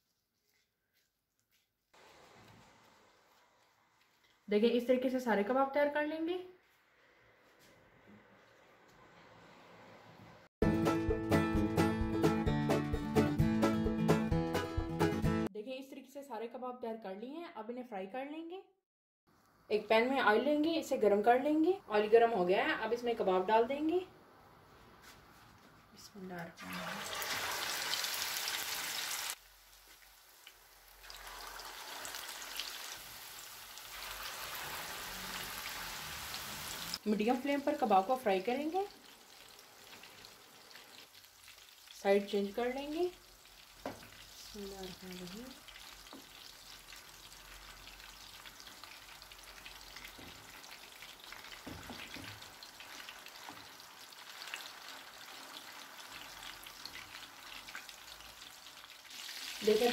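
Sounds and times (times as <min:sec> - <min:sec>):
kebabs sizzling in hot oil: 0:26.1 - 0:59.9.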